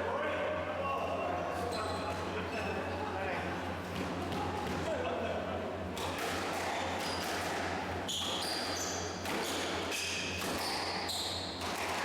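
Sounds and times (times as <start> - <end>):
shoes squeaking on court floor: 8.1 - 11.6
squash ball hitting walls: 9.2 - 12.0.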